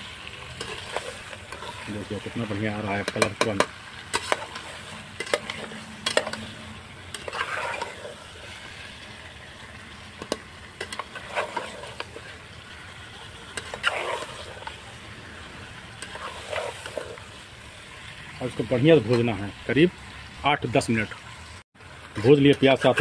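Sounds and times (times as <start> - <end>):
spoon scraping pan: 0.0 - 8.9, 10.1 - 12.6, 13.3 - 14.9, 15.8 - 17.4
chicken sizzling in oil: 0.0 - 23.0.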